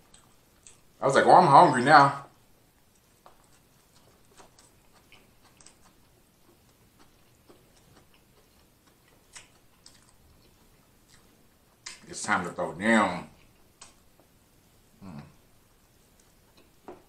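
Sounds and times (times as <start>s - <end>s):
mouth clicks and smacks chewing: 0.0s - 1.0s, 2.8s - 12.1s, 13.4s - 14.1s.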